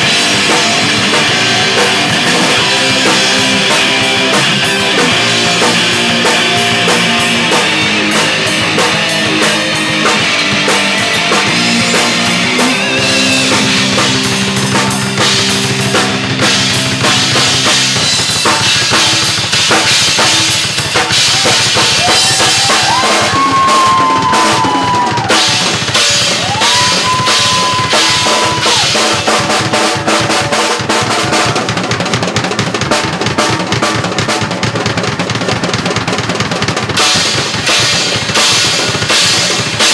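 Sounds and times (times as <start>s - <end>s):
electric guitars: 0.0s - 31.8s
bass guitar: 0.0s - 39.9s
drum kit: 0.0s - 39.9s.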